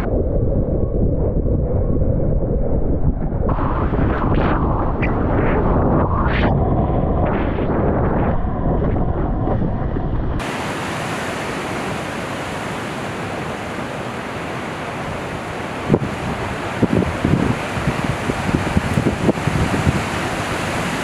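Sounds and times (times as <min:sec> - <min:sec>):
wind buffeting microphone: 0:00.0 - 0:21.0
ocean surf rushing: 0:03.5 - 0:06.4, 0:10.4 - 0:21.0.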